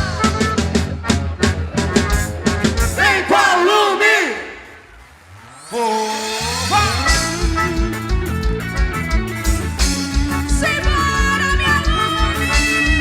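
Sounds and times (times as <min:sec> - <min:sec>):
bass drum beat: 0:00.0 - 0:03.2, 0:06.5 - 0:13.0
upbeat band music: 0:00.0 - 0:13.0.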